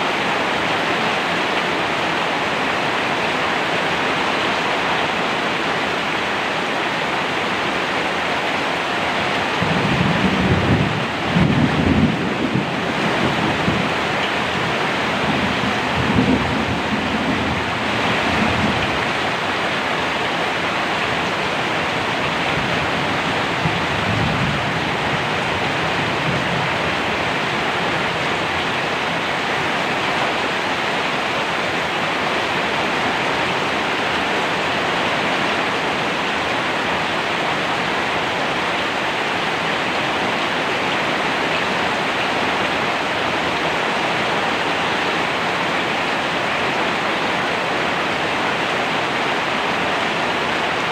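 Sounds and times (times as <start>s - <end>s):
steady rain: 0.0s - 50.9s
thunder rumble: 9.6s - 19.1s.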